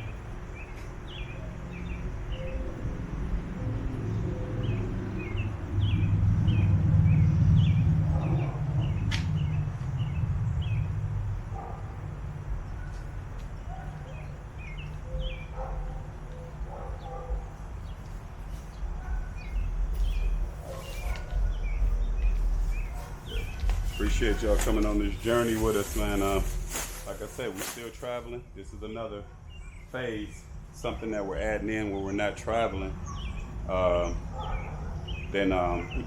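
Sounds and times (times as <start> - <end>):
small birds chirping: 0.0 - 36.0
low rumble: 2.7 - 13.7, 16.7 - 27.3.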